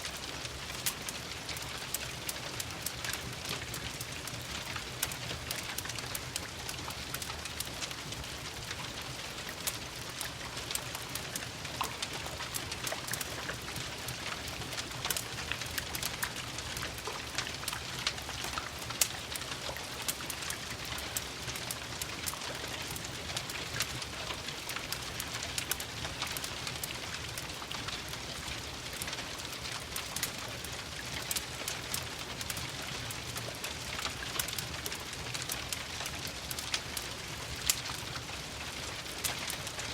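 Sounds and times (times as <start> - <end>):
steady rain: 0.0 - 39.9
wood fire crackling: 0.0 - 39.9.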